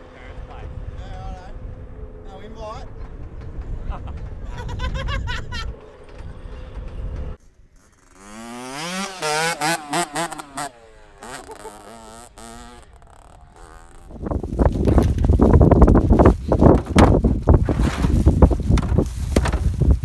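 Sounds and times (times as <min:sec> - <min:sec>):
wind noise: 0:00.0 - 0:07.4, 0:12.4 - 0:20.0
motorcycle engine revving: 0:05.5 - 0:20.0.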